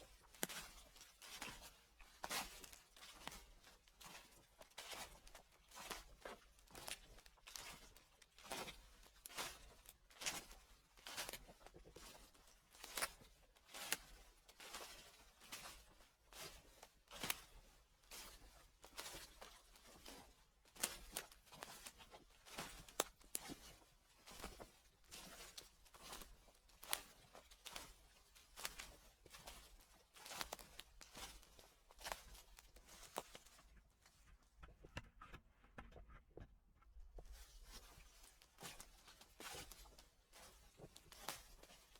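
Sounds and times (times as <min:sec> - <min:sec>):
footsteps on dry leaves: 0:28.6 - 0:33.6.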